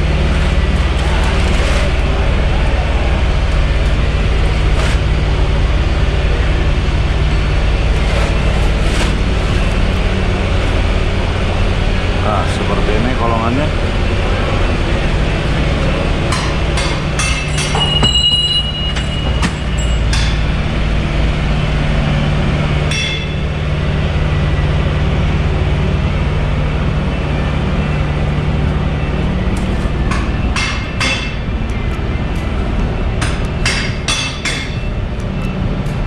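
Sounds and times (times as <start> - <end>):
low mechanical hum: 0.0 - 36.0
tools clanking on metal: 16.3 - 20.6.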